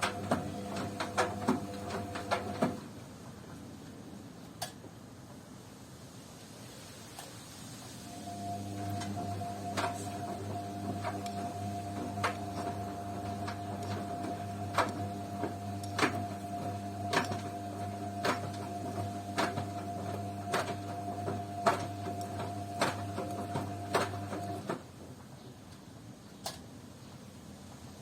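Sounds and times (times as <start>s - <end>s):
washing machine motor humming: 0.0s - 2.8s, 8.1s - 24.8s.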